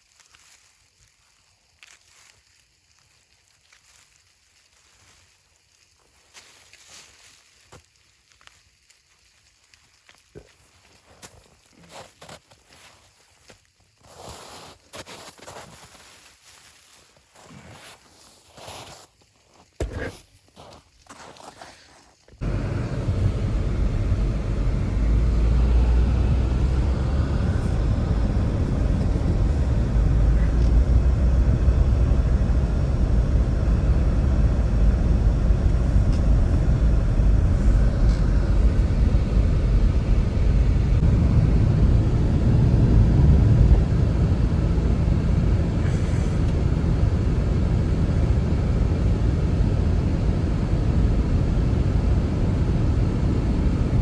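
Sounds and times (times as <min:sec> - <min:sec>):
strong blizzard wind: 0:22.4 - 0:54.0.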